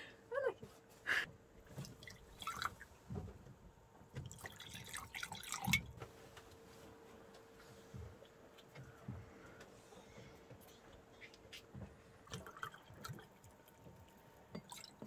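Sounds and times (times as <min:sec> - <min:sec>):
faint steady hum: 0:00.0 - 0:15.0
liquid dripping and splashing: 0:01.7 - 0:03.2, 0:04.1 - 0:06.0, 0:12.2 - 0:15.0.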